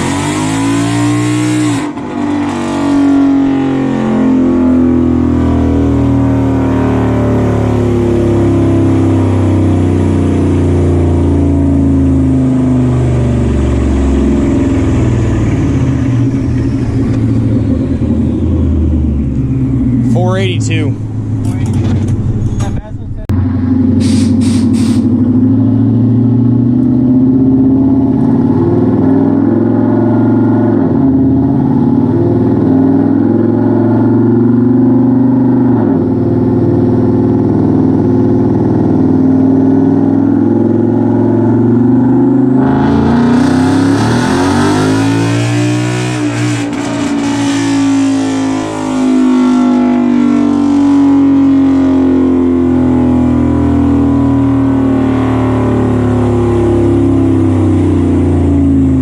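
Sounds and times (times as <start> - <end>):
car engine running: 2.0 - 34.9.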